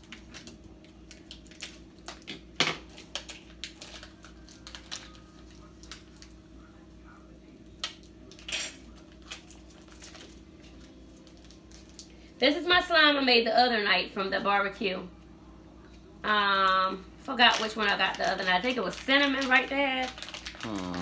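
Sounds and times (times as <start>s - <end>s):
plastic packaging clicks and clatters: 0.0s - 6.3s, 7.8s - 12.1s, 17.4s - 21.0s
packaging rustle: 0.1s - 6.3s, 17.5s - 21.0s.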